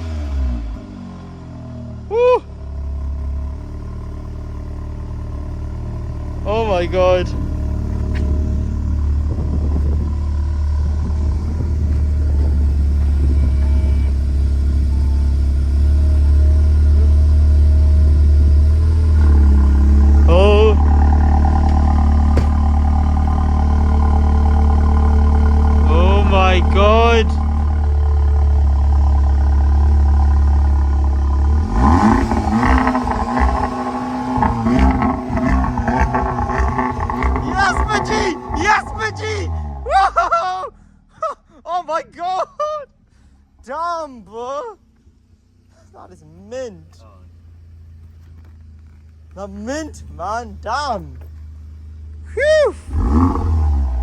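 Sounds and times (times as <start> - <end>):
car engine and exhaust droning: 0.0 - 54.0.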